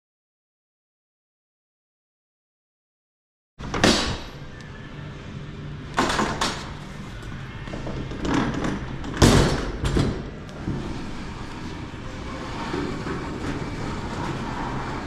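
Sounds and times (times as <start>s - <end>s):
elevator machinery humming: 3.6s - 15.0s.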